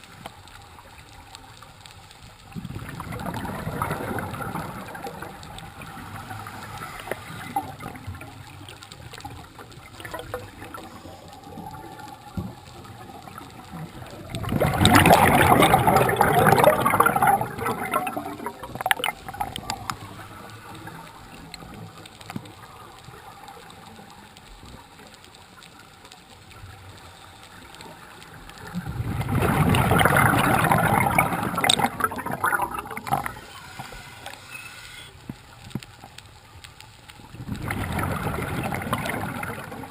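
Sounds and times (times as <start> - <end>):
underwater bubbles bursting: 2.4 - 23.9, 28.5 - 34.4, 37.2 - 39.9
underwater hiss: 2.7 - 21.9, 27.0 - 35.8.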